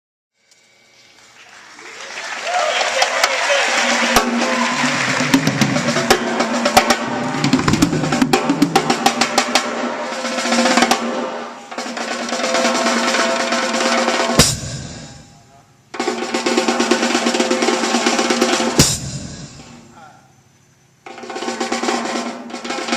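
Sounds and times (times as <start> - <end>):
jazz band playing: 2.2 - 19.9
snare drum rolls: 2.2 - 19.9, 21.0 - 22.9
cymbal crash: 4.1 - 15.5.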